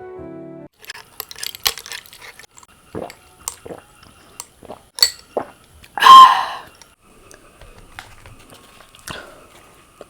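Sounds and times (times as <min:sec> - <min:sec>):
wet sticky food squishing: 0:00.8 - 0:06.0.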